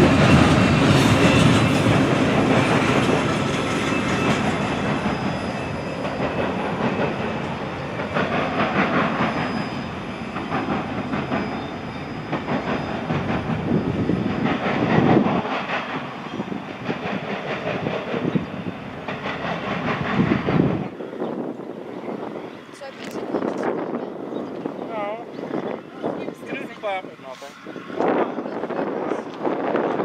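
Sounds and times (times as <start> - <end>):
train wheels clicking over rail joints: 0.0 - 21.0
freight train rolling past: 0.0 - 30.0.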